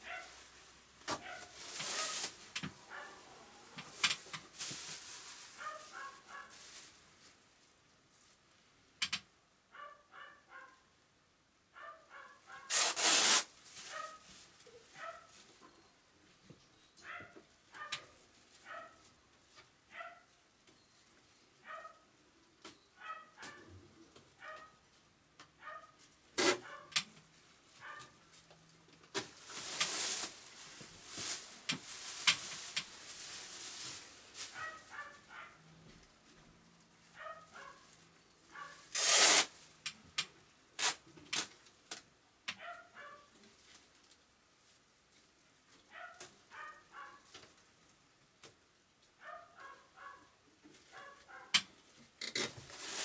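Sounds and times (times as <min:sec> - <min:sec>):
rustling handling noise: 0:00.0 - 0:08.7, 0:12.5 - 0:19.8, 0:25.9 - 0:40.1, 0:43.2 - 0:47.9, 0:49.6 - 0:53.0.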